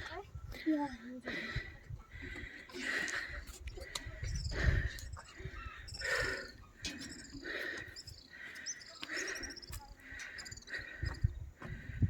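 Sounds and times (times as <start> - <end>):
insects trilling: 4.2 - 11.4.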